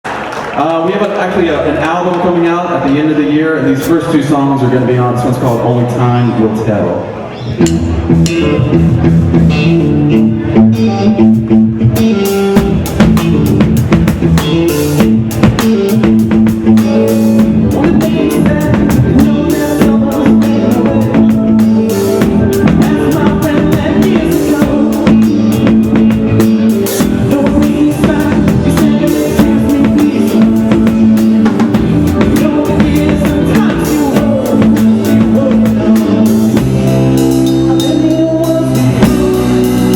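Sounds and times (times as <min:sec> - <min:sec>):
live rock band playing: 0:00.1 - 0:39.9
drum kit beat: 0:07.6 - 0:39.9
person singing: 0:15.6 - 0:39.9.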